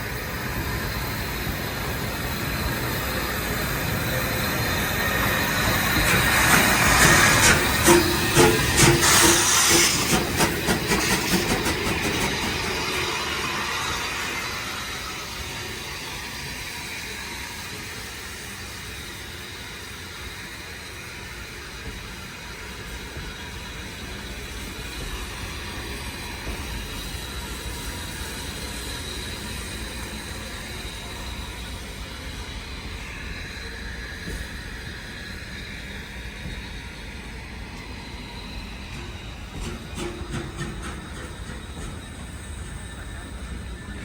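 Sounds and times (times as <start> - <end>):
hissing steam: 0.0 - 44.0
locomotive exhaust beats: 1.0 - 15.3.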